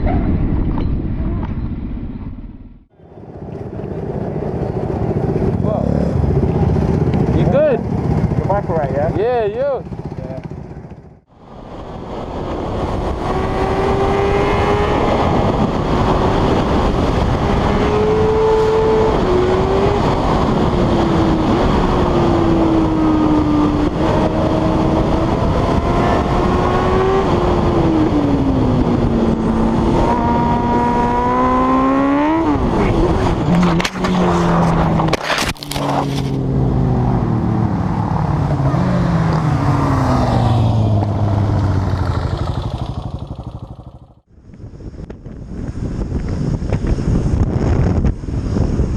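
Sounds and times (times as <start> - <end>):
wind and road noise: 0.0 - 48.9.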